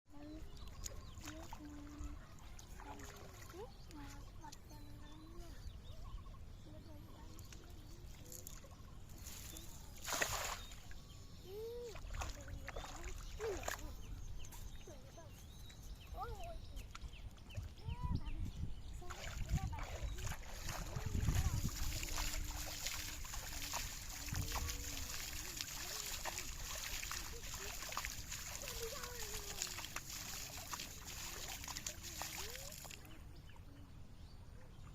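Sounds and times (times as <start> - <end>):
water splash: 9.2 - 11.0, 19.0 - 33.1
faint voices: 17.8 - 33.9.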